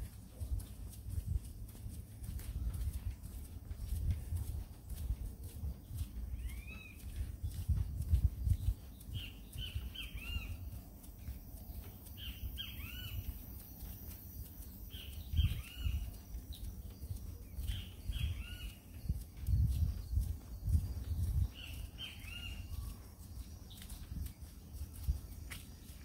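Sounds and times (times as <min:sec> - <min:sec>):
bird calling: 0:06.3 - 0:07.0, 0:09.2 - 0:10.7, 0:12.2 - 0:13.3
low thumps and rumble: 0:07.2 - 0:09.9.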